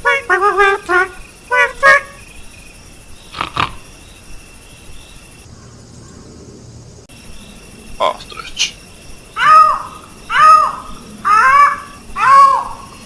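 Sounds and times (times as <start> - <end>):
short pitched calls: 0.0 - 2.6, 3.2 - 4.2, 8.0 - 13.0
insects chirring: 0.0 - 13.0
short animal calls: 3.3 - 3.9.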